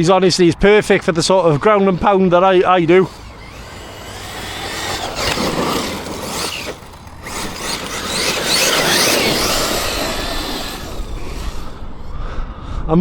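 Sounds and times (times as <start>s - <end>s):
tyre and ground noise: 1.3s - 12.2s
rc truck motor whining: 2.4s - 12.4s.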